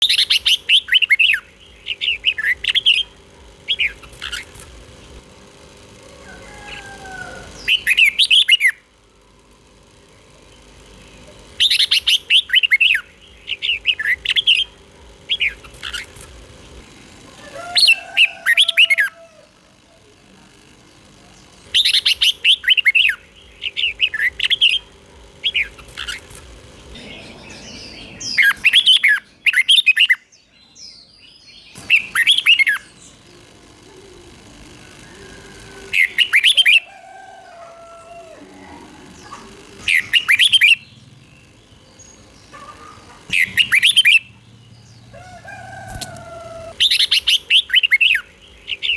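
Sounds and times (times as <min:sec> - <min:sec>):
faint steady hum: 0:00.0 - 0:48.9
bird singing warbled notes: 0:21.6 - 0:36.9, 0:38.4 - 0:48.9.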